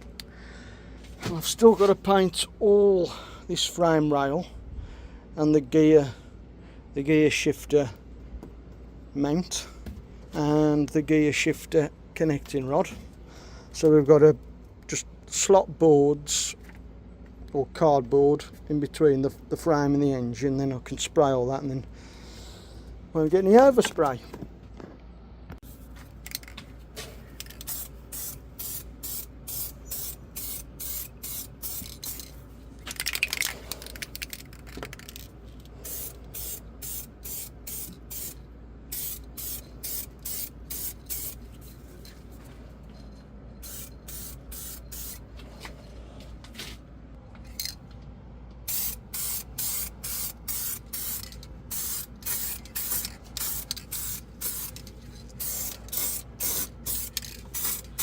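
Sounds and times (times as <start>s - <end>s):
spray paint hissing bursts: 27.5s - 32.3s, 35.8s - 41.4s, 43.6s - 45.3s, 48.7s - 58.0s.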